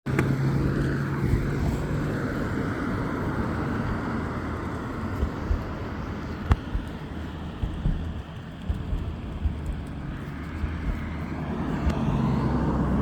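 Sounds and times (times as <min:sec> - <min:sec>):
skateboard wheels rumbling: 0:00.1 - 0:13.0
low thumps: 0:05.1 - 0:12.3.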